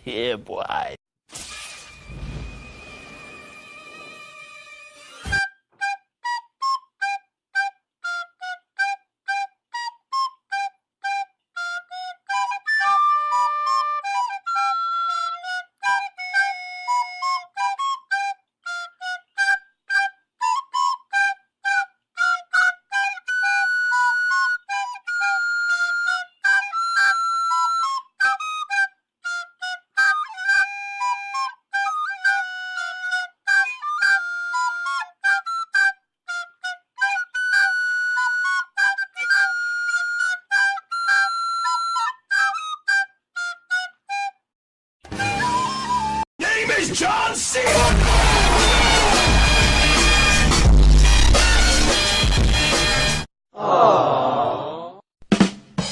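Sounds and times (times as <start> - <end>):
flute-like instrument playing tune: 2.4 - 52.4.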